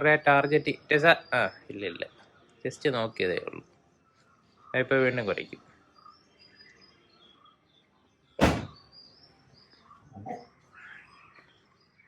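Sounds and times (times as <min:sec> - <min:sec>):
small birds chirping: 0:00.0 - 0:12.0
loud sharp sound: 0:08.4 - 0:08.8
soft low thud: 0:08.4 - 0:08.8.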